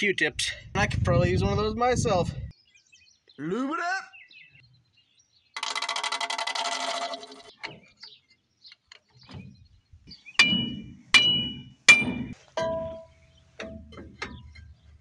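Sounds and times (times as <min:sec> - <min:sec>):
buzzing rattle: 0:05.6 - 0:07.6
metal tool striking metal: 0:10.4 - 0:14.7.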